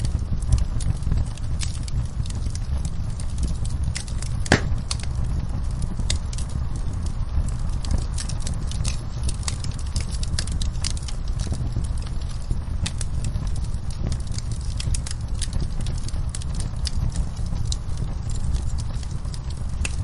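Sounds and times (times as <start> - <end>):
low rumble of flames: 0.0 - 20.0
wood fire crackles and pops: 0.0 - 20.0.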